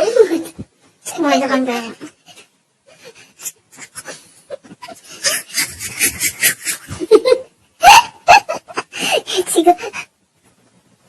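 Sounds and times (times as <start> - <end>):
breathy stifled laughter: 2.9 - 10.1.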